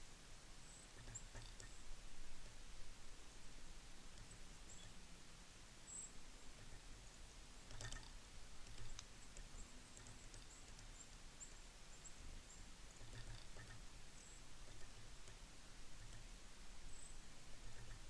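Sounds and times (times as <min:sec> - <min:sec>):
small birds chipping: 0:00.0 - 0:18.0
sharp click: 0:07.7 - 0:10.9.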